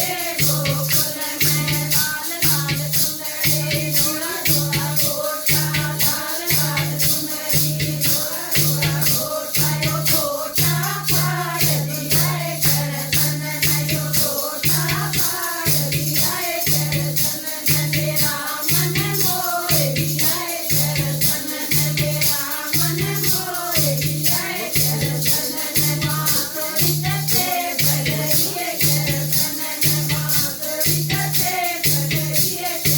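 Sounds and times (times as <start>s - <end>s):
fast rattling percussion: 0.0s - 32.9s
person singing: 21.3s - 32.8s.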